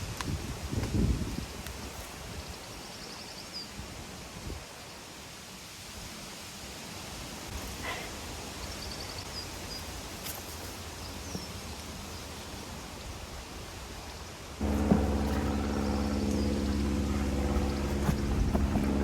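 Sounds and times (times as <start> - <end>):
engine drone: 14.6 - 19.0.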